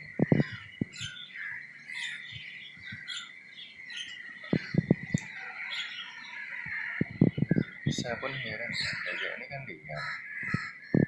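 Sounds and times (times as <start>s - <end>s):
low thumps: 0.0s - 0.9s, 4.5s - 5.3s, 7.0s - 8.2s
birds chirping: 0.0s - 11.0s.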